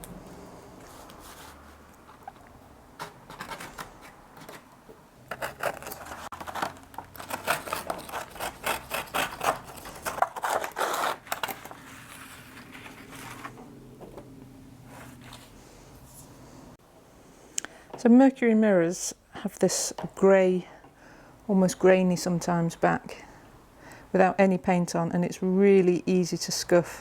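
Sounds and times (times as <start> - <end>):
scraping and clicking hand work: 1.1 - 13.6.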